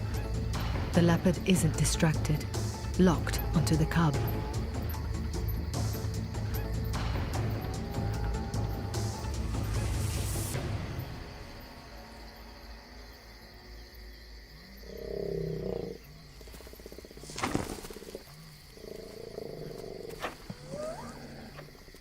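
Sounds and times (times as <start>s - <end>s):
night insects ringing: 0.0s - 22.0s
deep pulsing animal calls: 1.6s - 10.2s, 14.6s - 22.0s.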